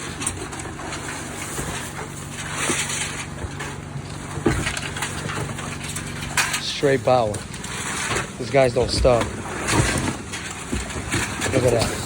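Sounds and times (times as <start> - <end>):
steady engine hum: 0.0 - 12.0.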